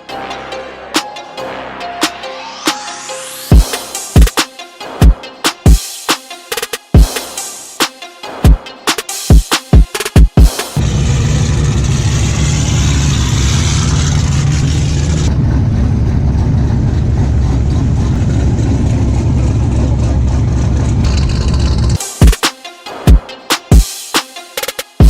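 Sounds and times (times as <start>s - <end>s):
vehicle engine running: 10.8s - 22.0s.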